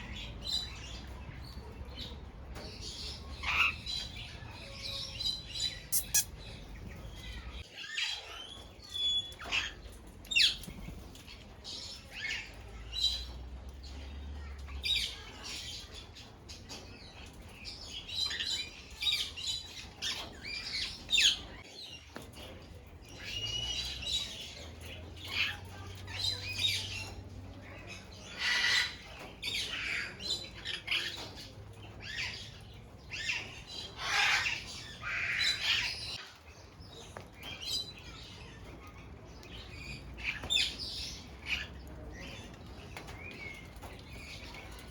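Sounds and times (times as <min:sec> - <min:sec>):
parrots squawking and calling: 0:04.9 - 0:06.7, 0:28.2 - 0:31.3, 0:33.2 - 0:36.2.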